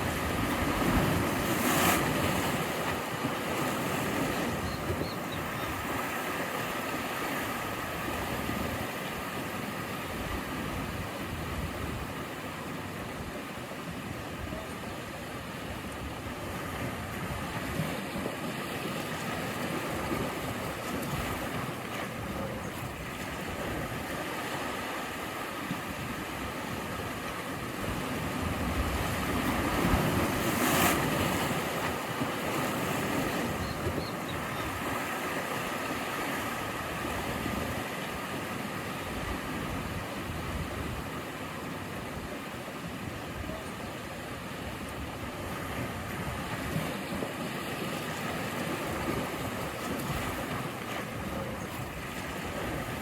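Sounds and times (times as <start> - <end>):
waves breaking: 0.0 - 53.0.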